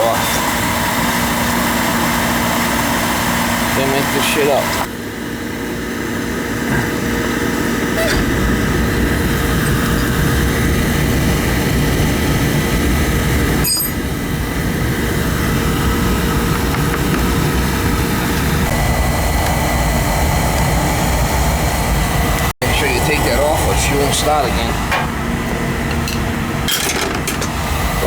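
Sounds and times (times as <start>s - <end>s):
oil burner motor and blower rushing: 0.0s - 28.0s.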